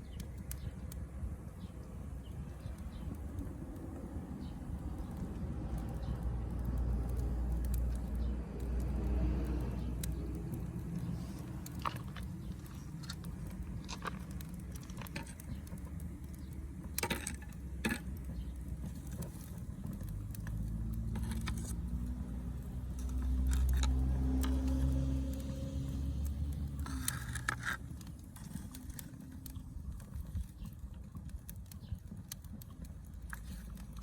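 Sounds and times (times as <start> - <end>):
wood fire crackling: 0.0 - 34.0
low rumble: 2.9 - 14.4.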